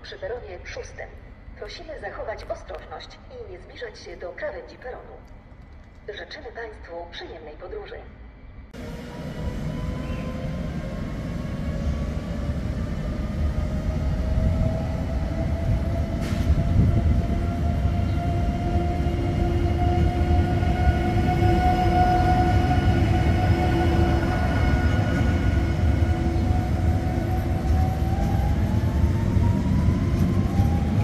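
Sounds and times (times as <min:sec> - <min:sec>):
train rumble: 0:08.7 - 0:31.0.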